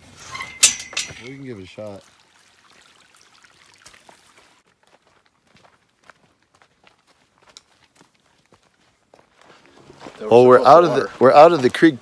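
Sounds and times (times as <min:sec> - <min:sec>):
footsteps on dirt trail: 0:03.8 - 0:11.8.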